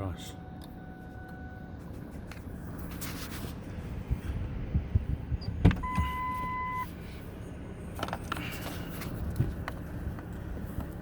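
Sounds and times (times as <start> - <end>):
electronic beep: 5.4 - 6.9.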